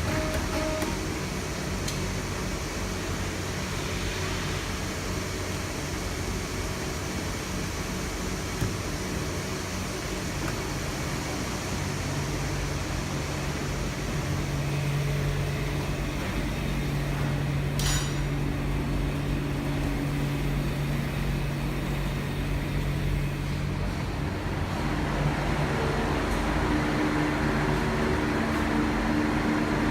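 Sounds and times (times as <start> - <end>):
machine humming: 0.0 - 29.9
sharp metallic clink: 17.8 - 18.3.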